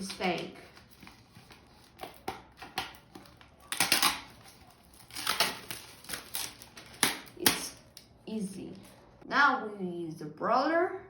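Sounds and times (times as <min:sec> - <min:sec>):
plastic bottle crinkling: 0:00.3 - 0:07.9.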